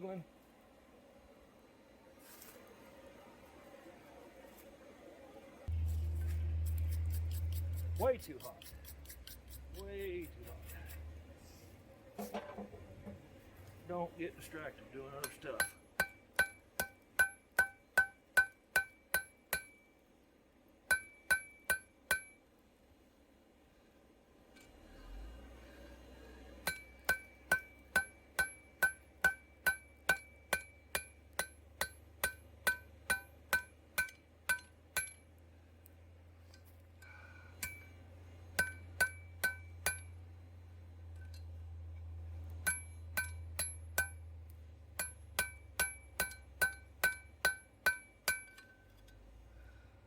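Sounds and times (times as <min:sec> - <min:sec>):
low steady hum: 0:00.0 - 0:50.0
hammer striking steel on anvil: 0:15.2 - 0:19.9, 0:20.9 - 0:22.4, 0:26.6 - 0:35.3, 0:37.6 - 0:40.2, 0:42.6 - 0:44.2, 0:45.0 - 0:48.8.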